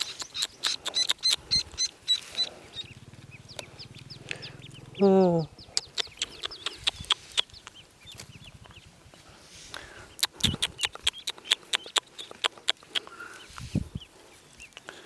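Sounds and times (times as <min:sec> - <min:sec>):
sharp clicks: 0:00.0 - 0:01.8, 0:05.7 - 0:08.8, 0:09.7 - 0:13.7
ducklings peeping: 0:00.0 - 0:15.0.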